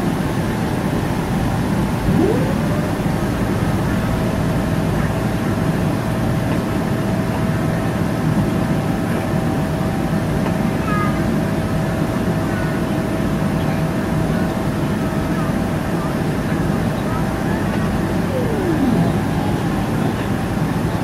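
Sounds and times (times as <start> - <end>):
jet engine rumble and whine: 0.0 - 5.2, 16.9 - 21.0
faint chirps: 2.0 - 3.5, 18.3 - 19.8.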